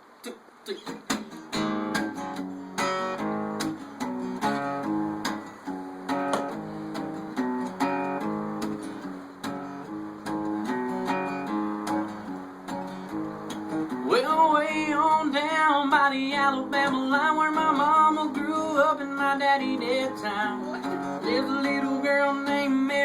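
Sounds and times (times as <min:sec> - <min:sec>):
acoustic guitar strumming: 0:00.2 - 0:23.0.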